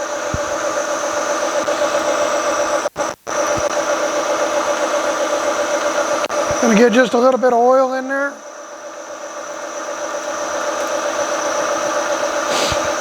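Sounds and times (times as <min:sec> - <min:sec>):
milling machine drilling steel: 0:00.0 - 0:08.1.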